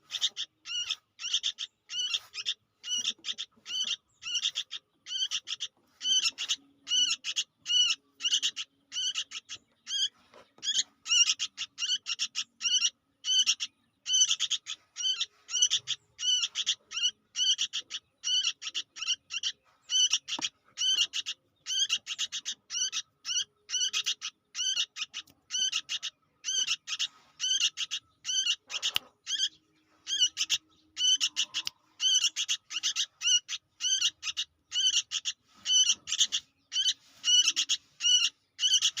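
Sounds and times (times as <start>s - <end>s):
bird chick chirping: 0.0s - 39.0s.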